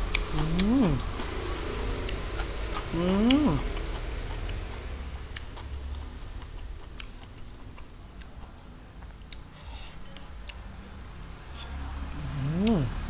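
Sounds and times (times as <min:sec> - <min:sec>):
chewing mouth clicks and smacks: 0:00.0 - 0:11.8
low steady hum: 0:00.0 - 0:13.0.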